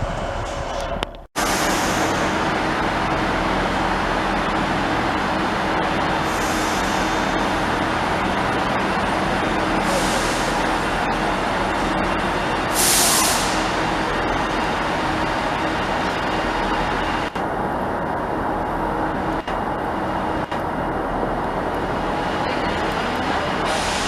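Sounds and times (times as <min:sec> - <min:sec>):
train mechanical drone: 0:00.0 - 0:24.0
short air hisses: 0:09.9 - 0:10.6, 0:12.7 - 0:13.7.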